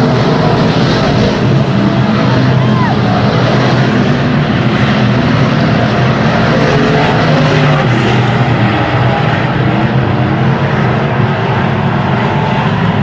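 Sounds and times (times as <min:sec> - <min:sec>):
race car engine running: 0:00.0 - 0:13.0.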